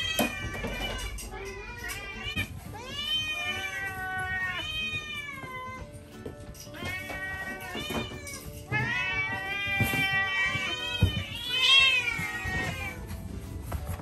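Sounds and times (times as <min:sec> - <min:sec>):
cats meowing: 0:00.0 - 0:14.0.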